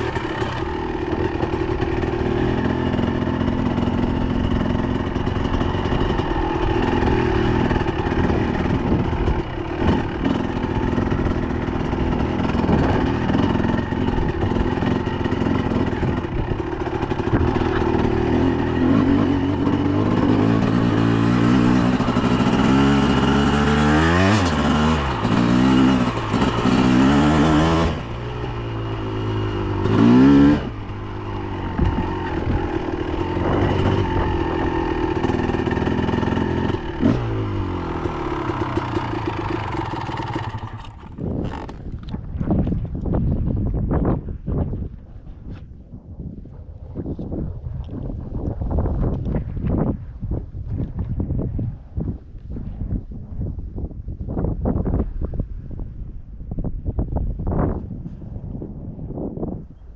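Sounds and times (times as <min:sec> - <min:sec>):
dirt bike engine revving: 0:00.0 - 0:41.8.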